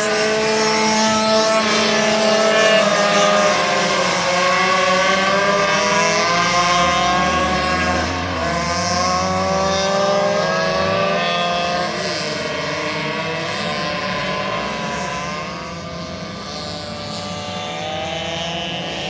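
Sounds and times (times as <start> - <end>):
minibike engines racing: 0.0 - 19.0.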